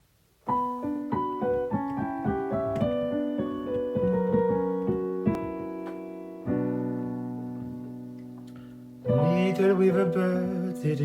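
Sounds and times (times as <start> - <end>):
solo piano melody: 0.3 - 11.0.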